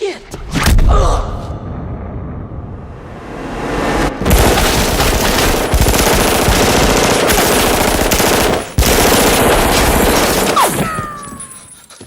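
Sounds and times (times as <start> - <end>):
rapid automatic gunfire: 4.3 - 10.8.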